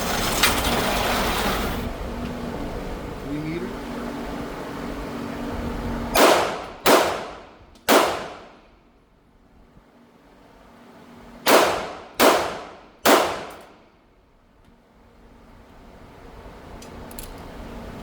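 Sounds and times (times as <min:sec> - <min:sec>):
pistol shots: 0:06.2 - 0:08.6, 0:11.5 - 0:13.8.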